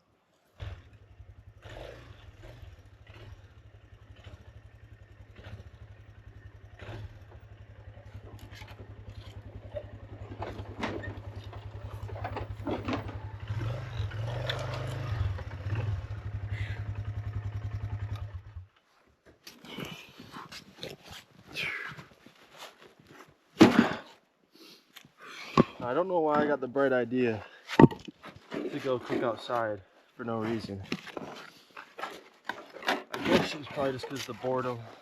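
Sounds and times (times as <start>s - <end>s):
atv engine running: 0.5s - 18.8s
rattling and knocking: 8.3s - 14.9s, 27.8s - 29.5s.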